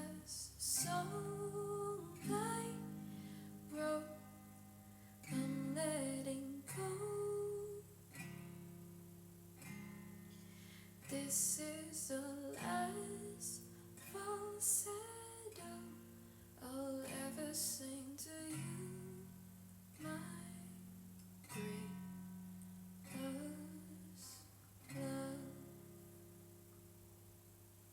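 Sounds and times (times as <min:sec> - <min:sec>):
person singing wordlessly: 0:00.0 - 0:02.9, 0:03.7 - 0:04.2, 0:05.3 - 0:07.9, 0:11.1 - 0:16.0, 0:16.6 - 0:19.3, 0:20.0 - 0:20.7, 0:23.2 - 0:25.6
acoustic guitar strumming chords: 0:00.0 - 0:16.1.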